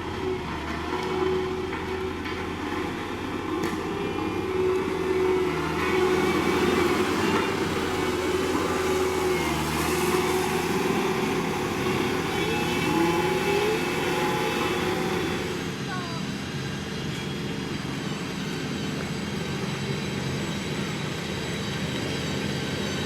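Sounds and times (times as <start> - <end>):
diesel machinery engine running: 0.0 - 23.0.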